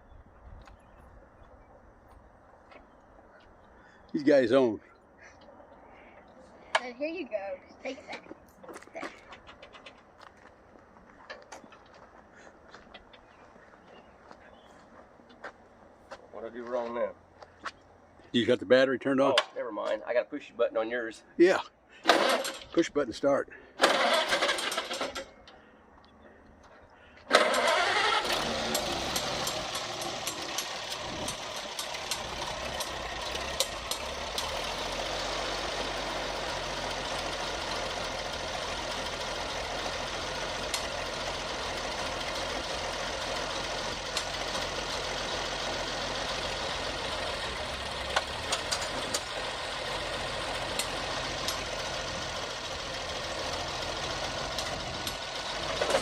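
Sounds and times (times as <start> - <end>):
tractor engine starting and running: 22.0 - 23.0, 23.6 - 56.0.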